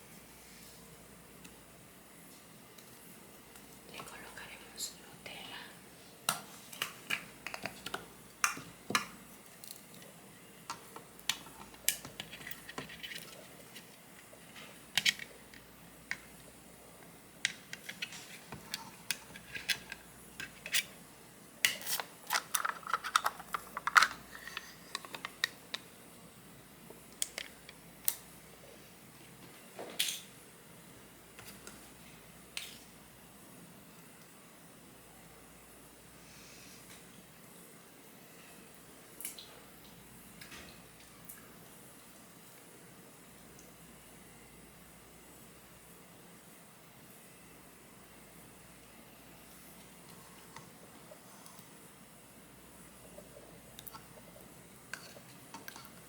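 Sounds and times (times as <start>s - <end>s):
utensils clicking and tapping: 21.7s - 25.8s.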